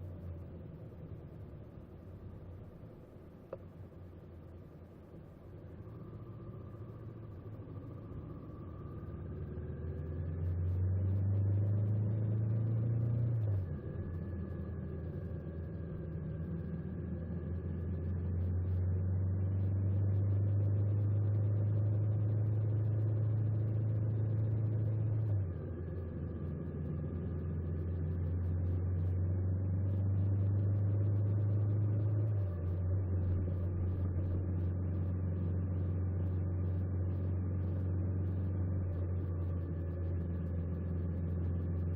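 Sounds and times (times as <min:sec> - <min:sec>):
motorcycle engine running: 0:13.6 - 0:41.9.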